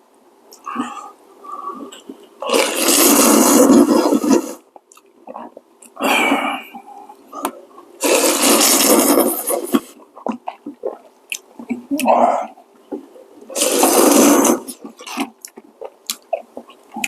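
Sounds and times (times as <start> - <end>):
person slurping noodles: 1.7 - 4.6, 8.0 - 10.0, 13.5 - 15.4.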